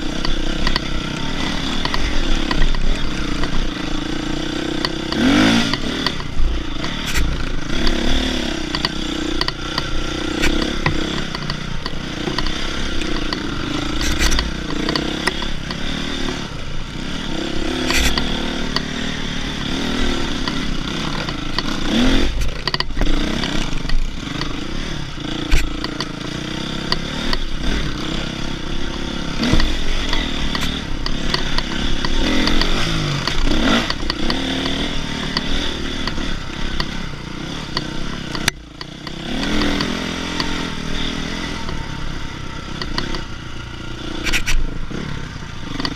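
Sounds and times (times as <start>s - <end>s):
dirt bike engine revving: 0.0s - 45.9s
clattering and scraping: 4.8s - 16.5s, 17.8s - 18.9s.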